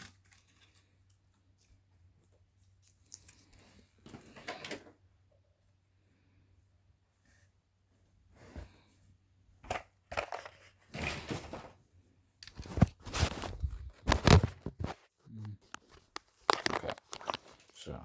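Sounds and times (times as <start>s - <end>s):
packaging crinkling and rustling: 12.4s - 18.0s.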